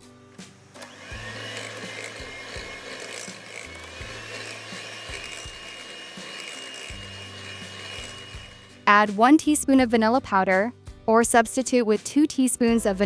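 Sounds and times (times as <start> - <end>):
electric mixer whirring: 0.8 - 8.8.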